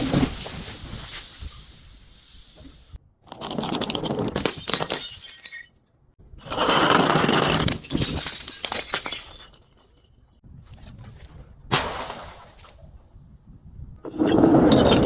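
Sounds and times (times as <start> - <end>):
glass breaking and crunching: 4.4 - 5.8, 7.0 - 10.4.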